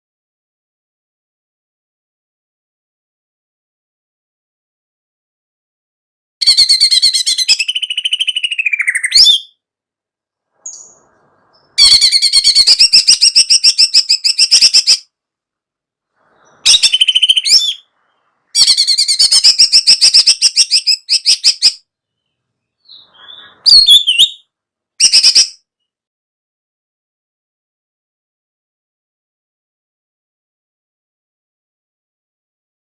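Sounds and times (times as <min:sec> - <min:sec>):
songbird chattering trills: 0:22.8 - 0:24.4.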